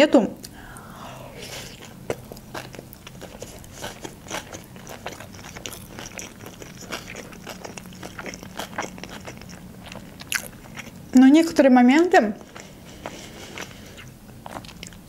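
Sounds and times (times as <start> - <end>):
chewing with mouth clicks: 1.6 - 11.1, 12.4 - 15.0.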